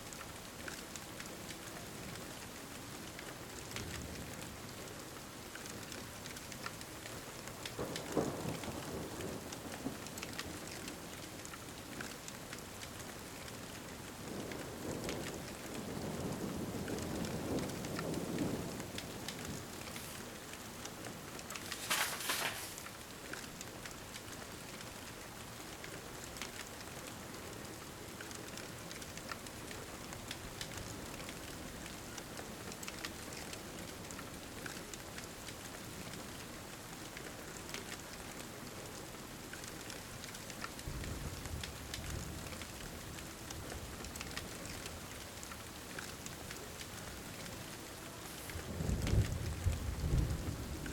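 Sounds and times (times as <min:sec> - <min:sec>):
steady rain: 0:00.0 - 0:50.9
wood fire crackling: 0:17.6 - 0:24.9, 0:48.0 - 0:49.2.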